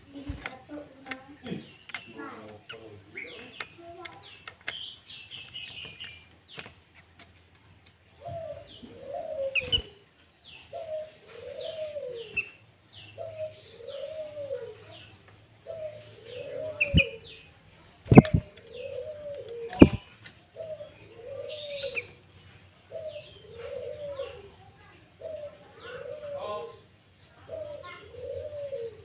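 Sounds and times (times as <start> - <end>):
sharp clicks: 1.8 - 2.6, 18.1 - 18.7.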